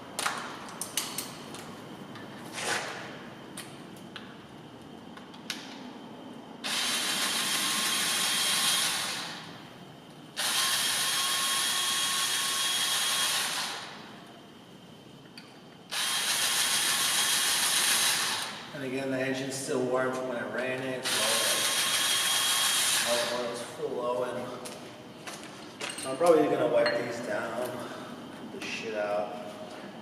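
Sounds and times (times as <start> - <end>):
power drill running: 6.6 - 9.5, 10.4 - 14.0, 15.9 - 18.6, 21.0 - 23.4.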